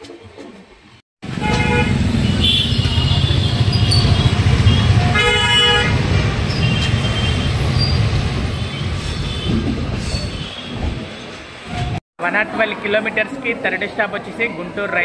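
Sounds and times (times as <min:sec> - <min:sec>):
train horn toots: 0:01.4 - 0:03.8.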